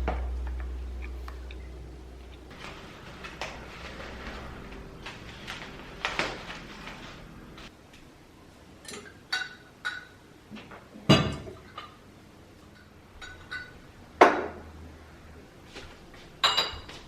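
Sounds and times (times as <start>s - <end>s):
dishes and glasses clinking: 12.8s - 13.8s, 16.4s - 17.0s.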